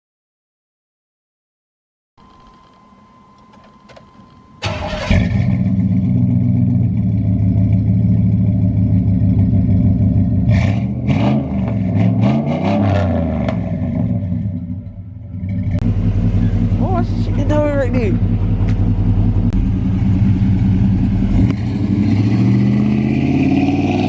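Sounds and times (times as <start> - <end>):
pickup truck engine idling: 4.6 - 10.5, 14.9 - 21.7.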